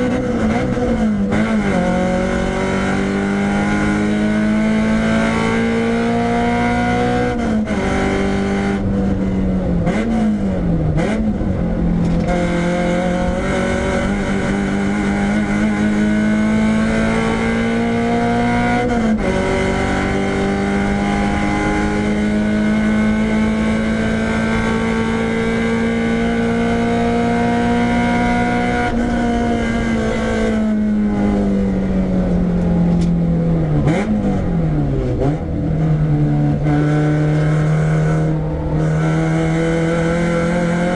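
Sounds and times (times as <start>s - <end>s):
car engine accelerating hard: 0.0s - 40.9s.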